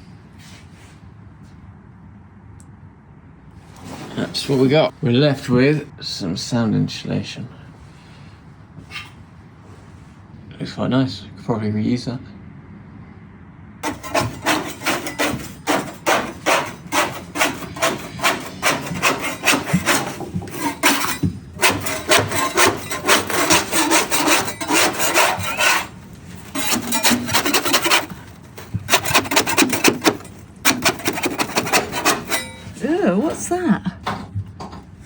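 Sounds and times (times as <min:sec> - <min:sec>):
hand scraping strokes: 0:13.8 - 0:33.6.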